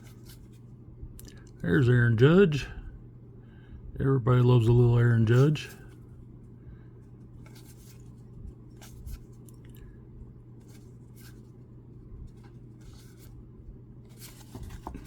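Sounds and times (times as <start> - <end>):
steady low hum: 0.0 - 15.0
trading cards flipped by hand: 7.4 - 9.7, 14.1 - 15.0.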